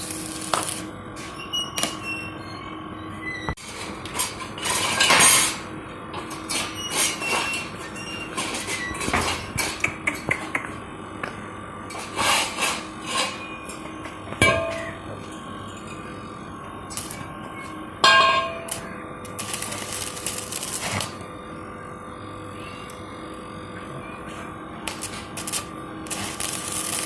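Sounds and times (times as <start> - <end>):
hammer striking steel: 14.4 - 15.0, 18.0 - 18.8
ringing metal clang: 14.4 - 15.0, 18.0 - 18.7.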